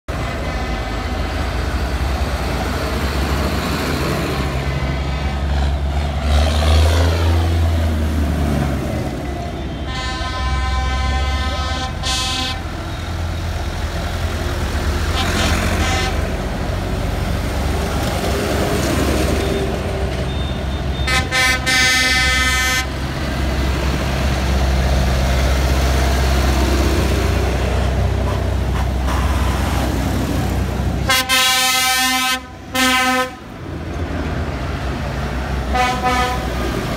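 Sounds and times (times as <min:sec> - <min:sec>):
tractor engines running: 0:00.1 - 0:36.9
horn blasts: 0:09.5 - 0:12.9, 0:15.1 - 0:16.4, 0:20.4 - 0:23.0, 0:31.0 - 0:33.4, 0:35.7 - 0:36.5.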